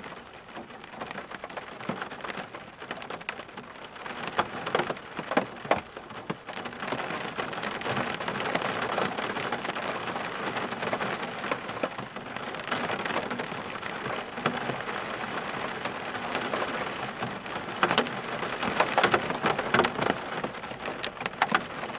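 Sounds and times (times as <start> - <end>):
steady rainfall: 0.0 - 21.9
raindrops clicking: 10.4 - 21.9.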